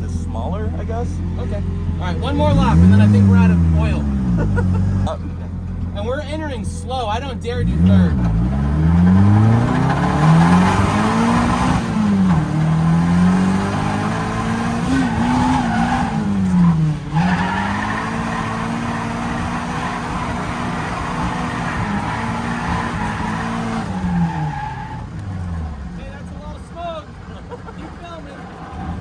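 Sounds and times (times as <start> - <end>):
car engine revving: 0.0 - 29.0
tyres squealing: 0.0 - 29.0.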